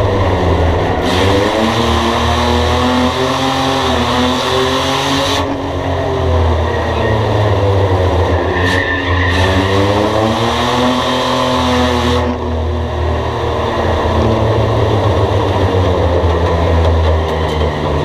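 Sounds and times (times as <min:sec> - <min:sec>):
race car engine: 0:00.0 - 0:18.0.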